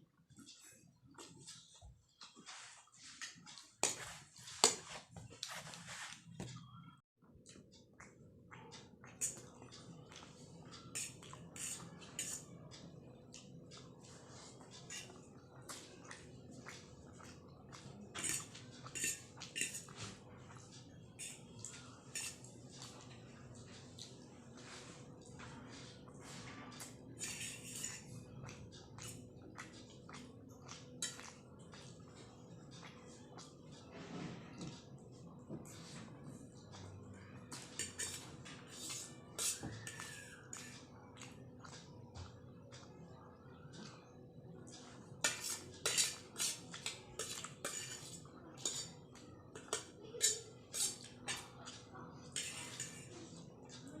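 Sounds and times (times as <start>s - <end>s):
cutlery scraping a dish: 0.5s - 5.7s, 8.8s - 12.8s, 13.7s - 23.1s, 26.7s - 31.8s, 37.5s - 40.8s, 45.2s - 53.1s
chewing and slurping noodles: 7.4s - 33.7s.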